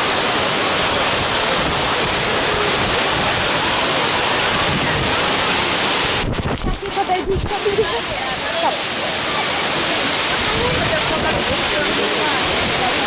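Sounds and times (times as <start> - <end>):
waterfall rushing: 0.0 - 13.0
wind on microphone: 1.1 - 8.2, 10.3 - 13.0.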